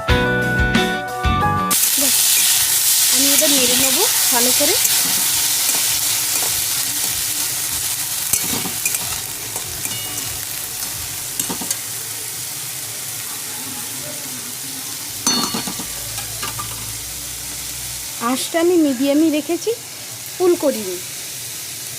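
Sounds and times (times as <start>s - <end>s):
corn sizzling in oil: 1.7s - 21.9s
spatula scraping a pan: 2.2s - 11.8s.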